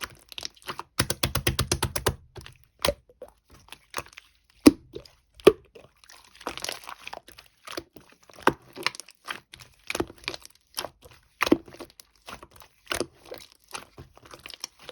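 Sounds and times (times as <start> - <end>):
crinkling and crunching: 0.0 - 1.0, 2.3 - 14.9
sharp taps and clicks: 1.0 - 2.2.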